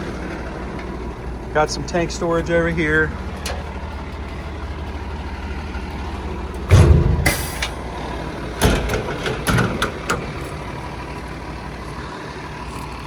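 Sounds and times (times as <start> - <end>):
diesel engine idling: 0.0 - 13.0
metal knocks and clunks: 6.5 - 10.8
loud metal clatter: 6.6 - 10.7.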